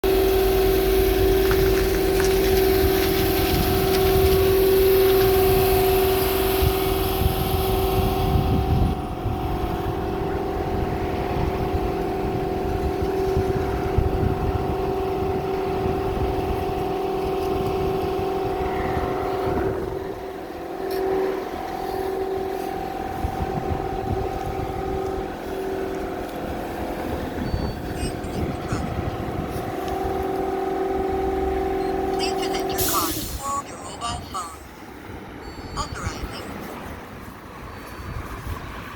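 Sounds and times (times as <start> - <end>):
car wash machine hum: 0.0 - 37.8
water spraying hiss: 0.1 - 7.9, 32.7 - 33.6.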